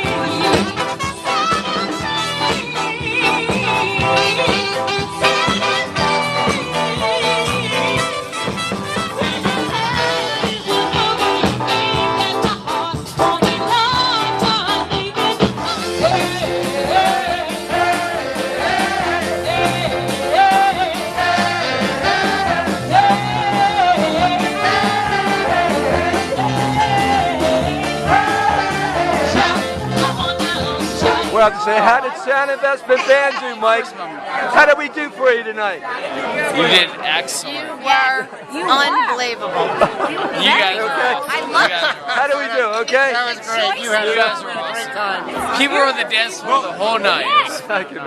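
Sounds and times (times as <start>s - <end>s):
drums beat: 0.0s - 31.6s
lead melody line: 0.0s - 31.8s
live band playing: 0.0s - 42.1s, 42.8s - 47.8s.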